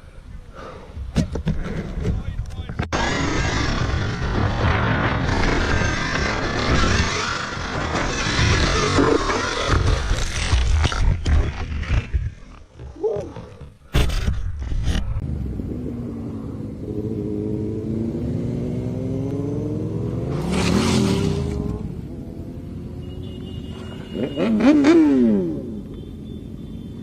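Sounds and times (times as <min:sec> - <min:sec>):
engine revving: 0:02.9 - 0:12.2, 0:15.2 - 0:23.2, 0:24.2 - 0:25.8
vehicle engines passing: 0:15.2 - 0:27.0.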